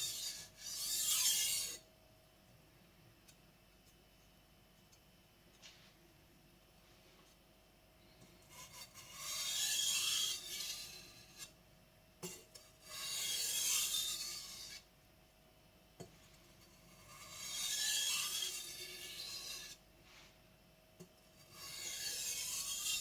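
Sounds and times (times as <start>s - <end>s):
knife scraping on whetstone: 0.0s - 1.8s, 8.5s - 11.6s, 12.2s - 14.9s, 16.2s - 20.3s, 21.4s - 23.0s.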